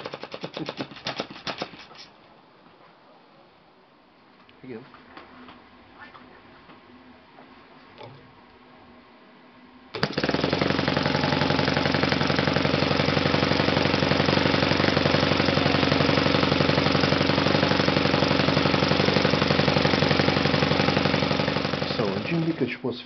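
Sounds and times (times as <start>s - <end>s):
model engine running: 10.0s - 22.7s.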